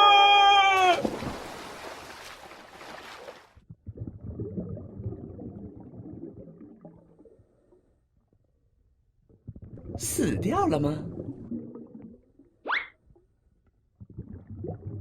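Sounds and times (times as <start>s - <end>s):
underwater bubbling and gurgling: 3.6s - 8.0s, 9.3s - 12.5s, 13.8s - 15.0s.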